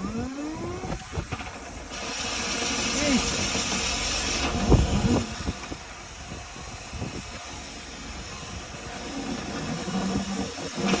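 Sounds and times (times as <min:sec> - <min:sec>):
rushing air: 0:00.6 - 0:11.0.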